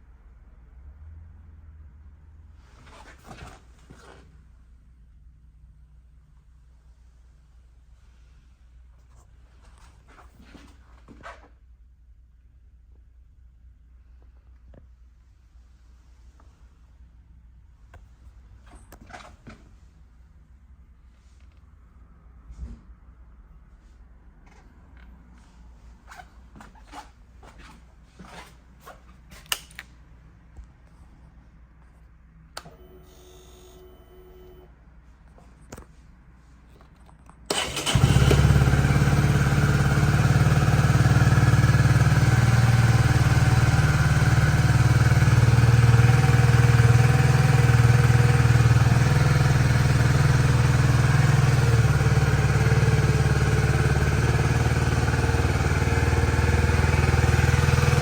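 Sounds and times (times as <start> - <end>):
motorcycle engine starting and idling: 37.5 - 58.0.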